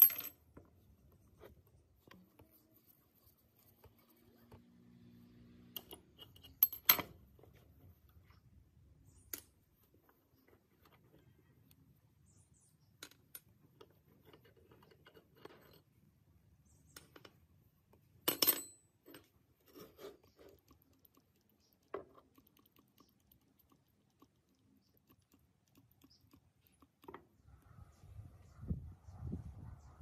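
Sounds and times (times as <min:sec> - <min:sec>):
small metal parts clinking: 0:00.0 - 0:00.4, 0:05.8 - 0:07.2.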